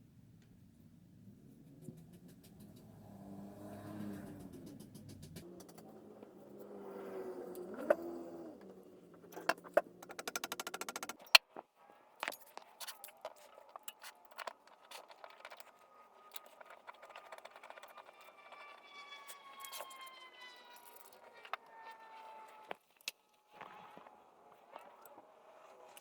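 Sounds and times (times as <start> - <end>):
ratchet-like clicks: 3.9 - 5.9, 9.3 - 11.4.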